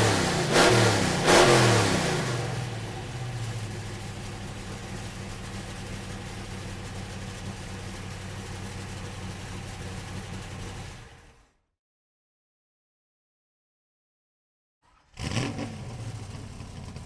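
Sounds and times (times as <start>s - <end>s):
car engine idling: 0.0s - 11.5s.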